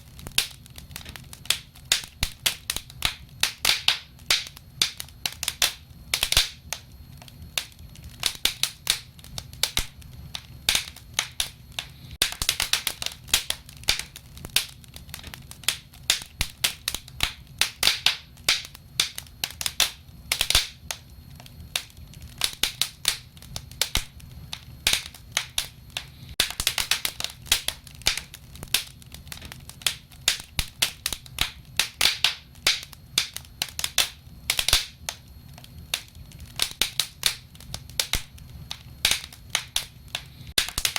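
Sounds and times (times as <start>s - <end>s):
low rumble of flames: 0.0s - 40.9s
wood fire crackling: 0.0s - 40.9s.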